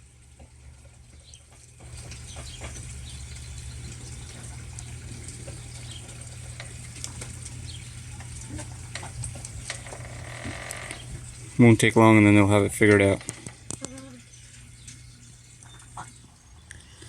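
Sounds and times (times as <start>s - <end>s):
chickens pecking: 0.4s - 11.5s
steady low hum: 1.8s - 17.0s.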